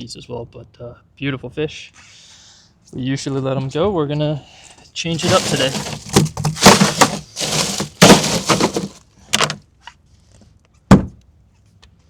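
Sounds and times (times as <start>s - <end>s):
rough clattering and scraping: 5.2s - 9.6s.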